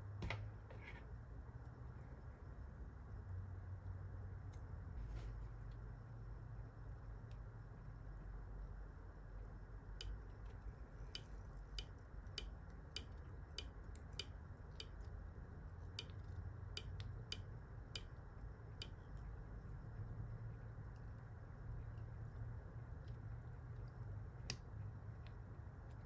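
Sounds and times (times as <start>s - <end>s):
low steady hum: 0.0s - 26.0s
sharp light clicks: 11.1s - 15.1s, 16.0s - 18.2s.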